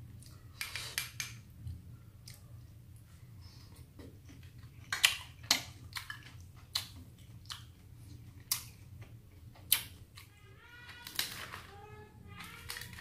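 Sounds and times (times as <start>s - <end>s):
person chewing: 3.5s - 10.3s.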